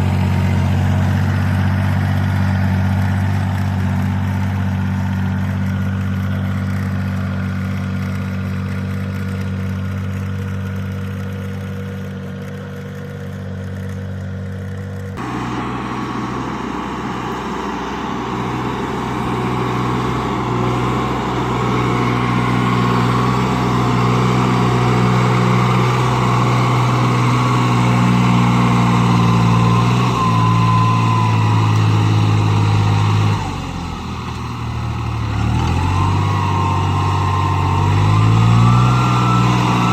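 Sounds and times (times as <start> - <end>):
small tractor engine running: 0.0 - 39.9
engine pitch shifting up and down: 15.2 - 39.9.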